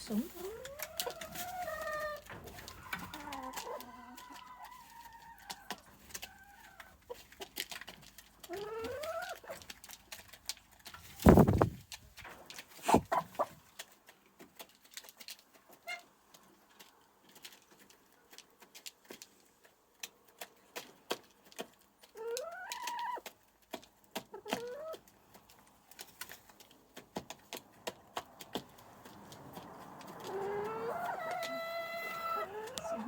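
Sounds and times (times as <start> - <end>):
hen calling: 30.3 - 33.0.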